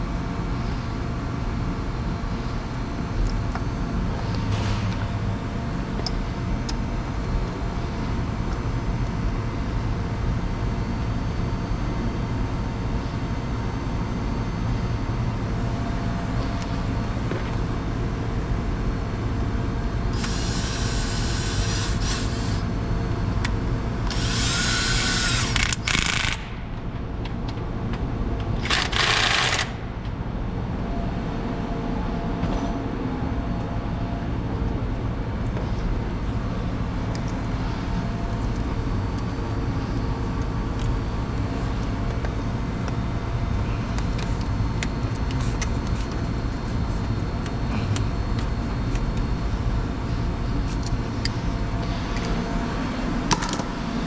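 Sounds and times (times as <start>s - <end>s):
steady mechanical hum: 0.0s - 54.0s
power drill whining: 20.2s - 22.6s, 24.1s - 26.3s.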